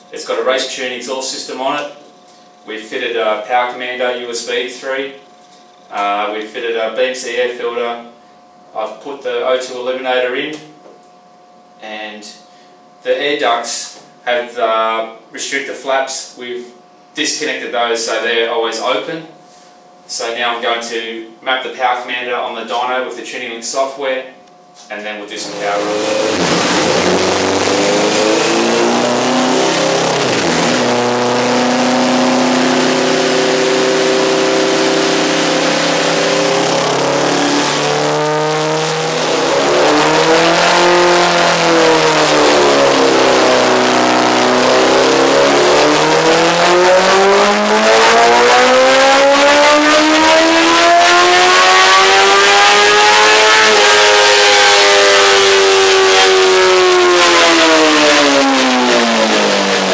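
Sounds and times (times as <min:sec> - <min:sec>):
motorcycle engine revving on dyno: 0:25.3 - 0:59.9.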